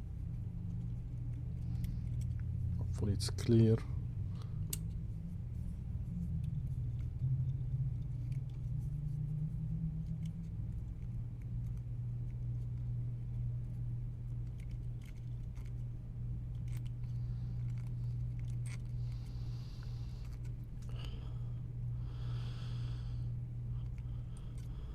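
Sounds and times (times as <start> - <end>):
steady low hum: 0.0 - 24.9
small parts clicking and tapping: 6.3 - 8.9, 14.2 - 21.2.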